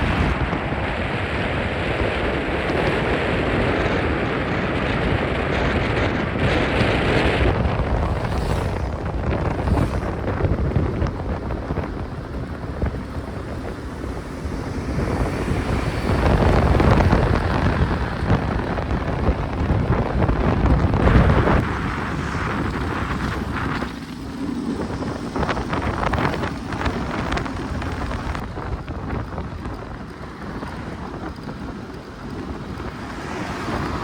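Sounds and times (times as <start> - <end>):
car driving rumble: 0.0 - 34.0
wind buffeting microphone: 0.0 - 34.0.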